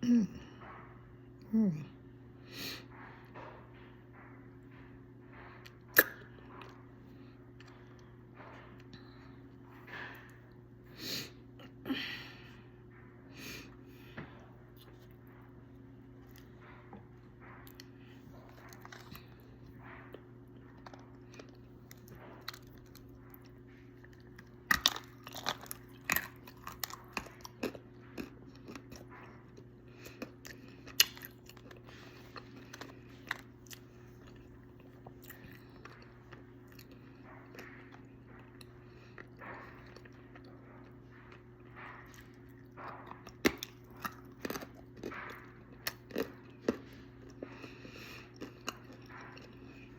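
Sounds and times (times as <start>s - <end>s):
steady low hum: 0.0s - 49.9s
clay being crunched and chewed: 20.1s - 49.9s.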